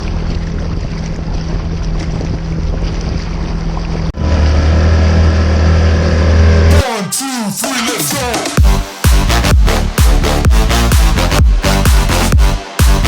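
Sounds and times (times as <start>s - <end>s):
wind noise: 0.0s - 4.0s
boat motor running: 0.0s - 6.8s, 8.4s - 13.0s
water noise: 0.0s - 7.0s, 7.9s - 13.0s.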